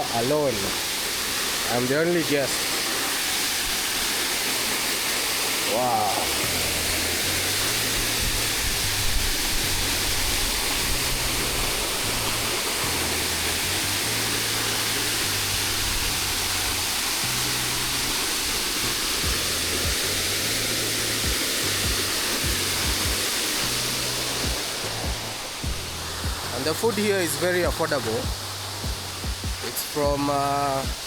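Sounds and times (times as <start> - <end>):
waterfall rushing: 0.0 - 31.0
background music with bass: 5.7 - 31.0.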